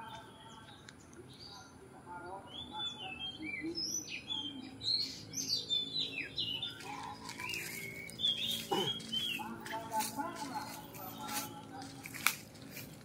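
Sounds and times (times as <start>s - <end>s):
bird singing whistled phrases: 2.5s - 6.8s, 7.4s - 9.4s.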